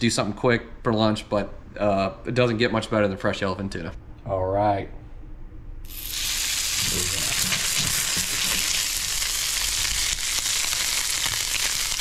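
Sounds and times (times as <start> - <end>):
fish steak sizzling in pan: 5.9 - 12.0.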